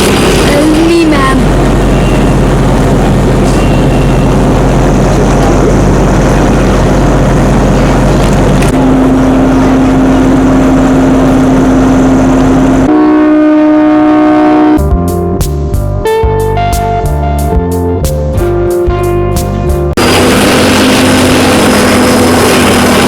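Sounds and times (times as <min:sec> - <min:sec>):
train running rumble: 0:00.0 - 0:13.0, 0:19.5 - 0:23.0
steady tone: 0:00.0 - 0:15.4.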